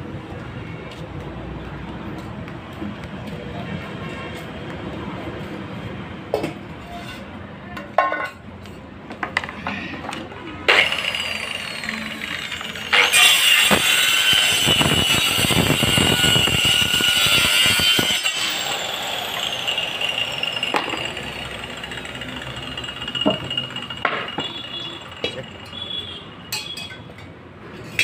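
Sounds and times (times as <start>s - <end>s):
electric power tool whining: 10.7s - 25.9s.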